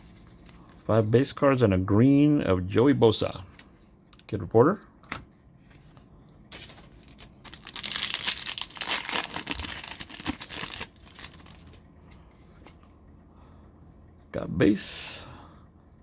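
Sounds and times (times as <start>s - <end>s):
foil wrapper tearing and crinkling: 6.6s - 11.8s.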